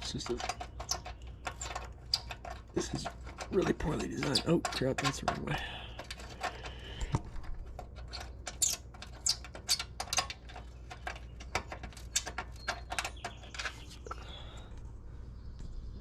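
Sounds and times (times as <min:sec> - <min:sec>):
hand tools clicking on metal: 0:00.0 - 0:07.0, 0:07.7 - 0:14.2
steady low hum: 0:00.0 - 0:16.0.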